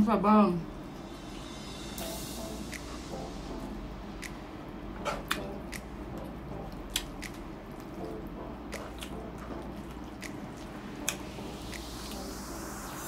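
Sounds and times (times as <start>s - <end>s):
wet chewing and lip-smacking: 5.2s - 12.3s.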